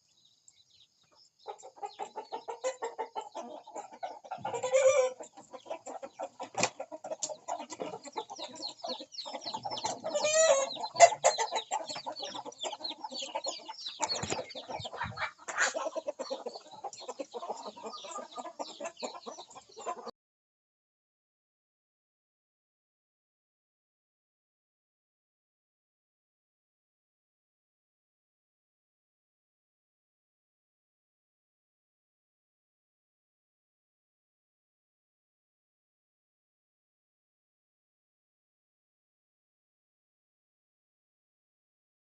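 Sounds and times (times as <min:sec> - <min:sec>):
chickens clucking: 0:00.3 - 0:20.1.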